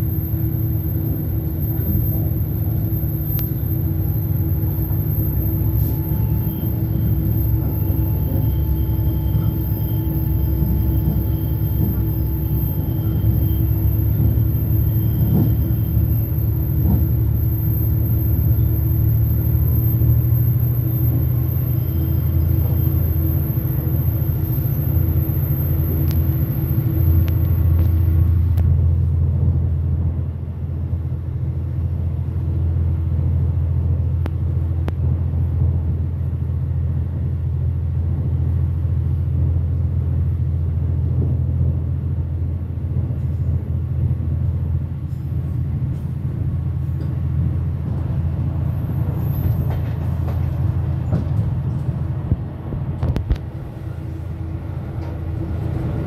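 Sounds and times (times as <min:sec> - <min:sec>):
wheel and rail noise: 0:00.0 - 0:31.5, 0:32.5 - 0:56.0
locomotive engine drone: 0:00.0 - 0:56.0.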